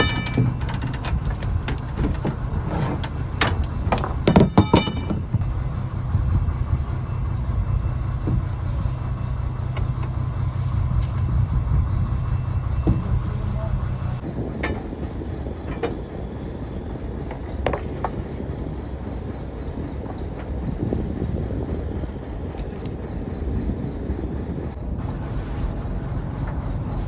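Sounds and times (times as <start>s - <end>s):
sharp metallic knocks: 0.0s - 5.5s
boat engine running: 0.0s - 27.0s.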